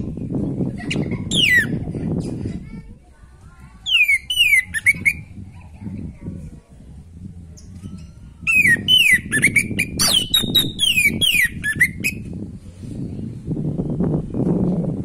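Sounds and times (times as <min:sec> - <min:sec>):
low rumbling background noise: 0:00.0 - 0:15.0
thrush singing whistled notes: 0:03.8 - 0:05.3, 0:07.6 - 0:12.2.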